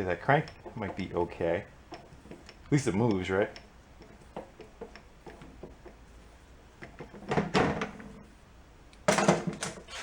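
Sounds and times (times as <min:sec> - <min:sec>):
clattering knocks: 0:09.1 - 0:09.8
sharp metal clunk: 0:09.1 - 0:09.8.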